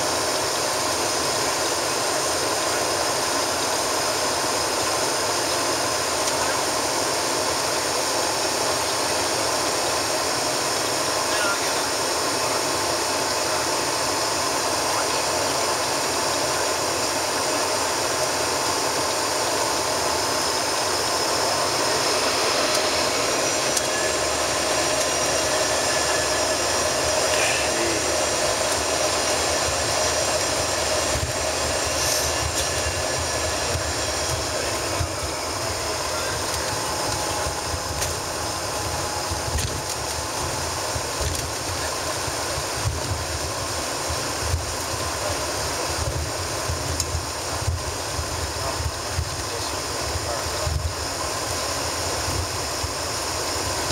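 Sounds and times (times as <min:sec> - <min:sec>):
jet engines idling whine: 0:00.0 - 0:53.9
airflow hiss: 0:31.1 - 0:33.0.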